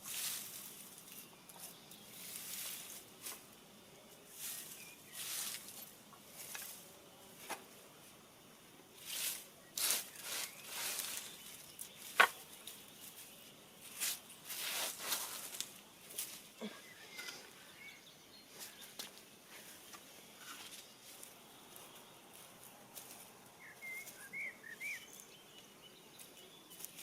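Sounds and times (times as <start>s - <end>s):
rustling and scraping: 0.0s - 3.6s, 4.3s - 7.8s, 9.0s - 17.7s, 18.5s - 23.4s.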